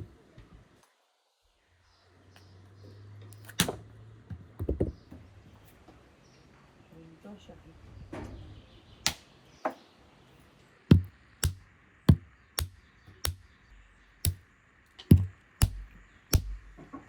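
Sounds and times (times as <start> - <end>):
sharp knocks with dull thump: 10.9 - 13.4, 15.1 - 16.9.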